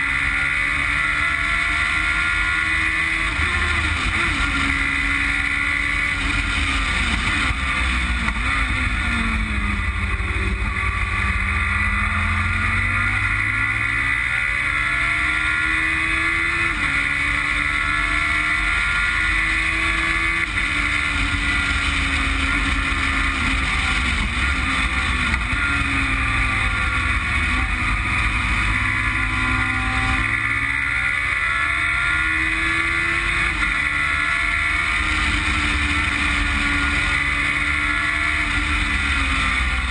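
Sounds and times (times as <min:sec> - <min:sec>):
car engine revving through gears: 0:00.0 - 0:39.9.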